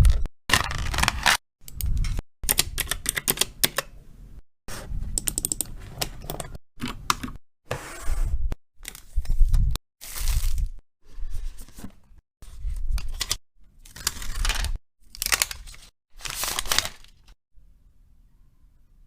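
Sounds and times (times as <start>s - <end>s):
packaging crinkling and tearing: 13.1s - 17.4s.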